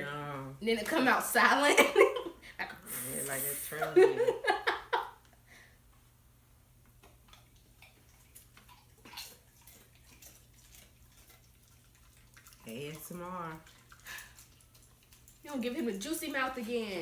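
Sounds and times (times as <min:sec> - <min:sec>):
low room hum: 0:00.0 - 0:17.0
chewing and lip-smacking: 0:06.9 - 0:17.0.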